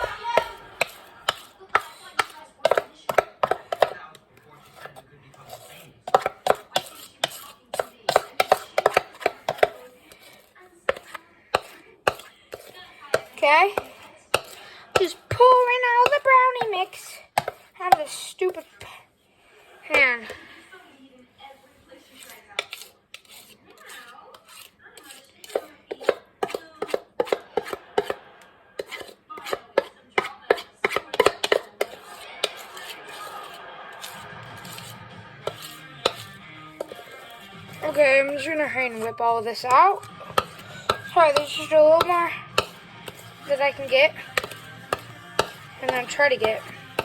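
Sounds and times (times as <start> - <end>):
utensil knocking against a pan: 0.0 - 4.0, 6.1 - 9.9, 10.9 - 18.6, 25.5 - 28.2, 28.8 - 47.0.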